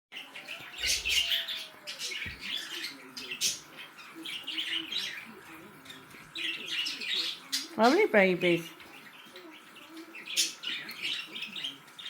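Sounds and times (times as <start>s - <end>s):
budgerigars chirping and chattering: 0.2s - 12.0s.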